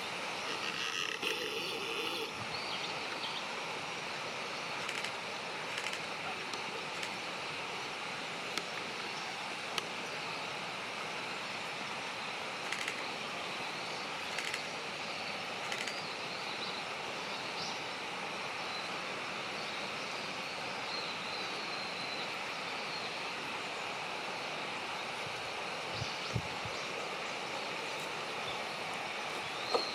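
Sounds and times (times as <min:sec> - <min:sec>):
outdoor background hiss: 0:00.0 - 0:29.9
rapid high ticks: 0:04.8 - 0:07.2.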